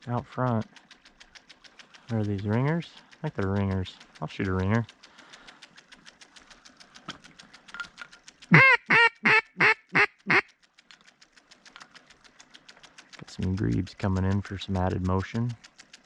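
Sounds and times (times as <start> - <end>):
duck quacking: 8.5 - 10.5.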